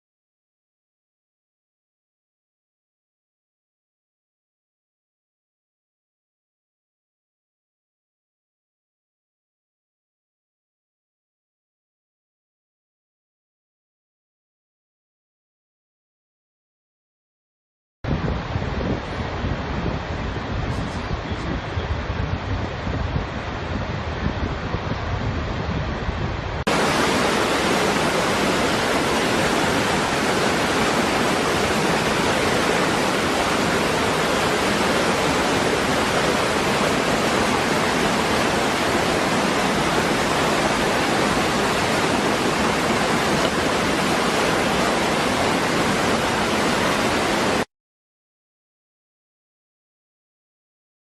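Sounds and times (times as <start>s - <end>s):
rumbling wind and water noise: 18.1s - 47.7s
waterfall rushing: 26.6s - 47.7s.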